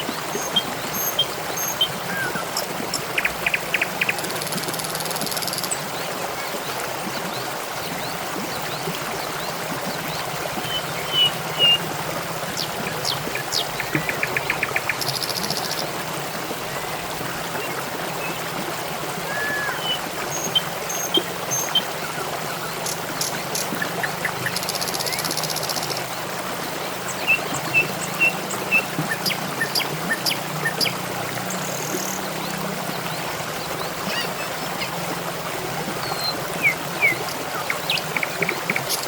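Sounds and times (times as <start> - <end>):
water trickling and splashing: 0.0 - 39.0
bird chirps and trills: 27.0 - 32.4.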